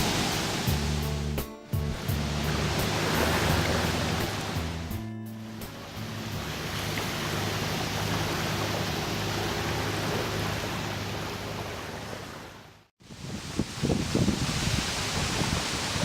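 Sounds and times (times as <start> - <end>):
ship engine droning: 0.0 - 12.8
rushing wash of water: 0.0 - 16.0.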